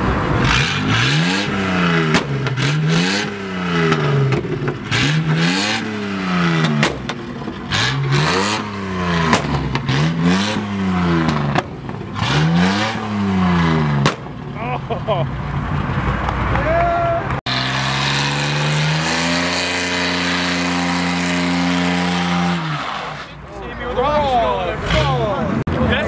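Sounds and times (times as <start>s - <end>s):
exhaust cracks: 0.0s - 14.8s
car engine revving hard: 0.2s - 14.2s, 17.5s - 23.4s.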